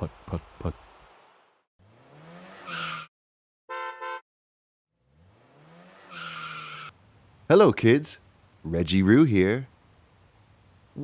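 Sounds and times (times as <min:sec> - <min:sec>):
vehicle engine revving: 0:01.8 - 0:03.1, 0:05.0 - 0:07.0
short horn beeps: 0:03.7 - 0:04.2.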